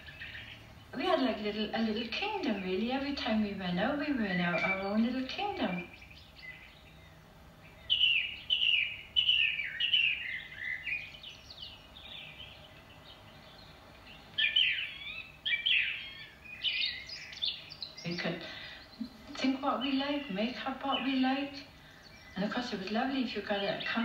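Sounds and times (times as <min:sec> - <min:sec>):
songbirds singing: 0:00.0 - 0:24.0.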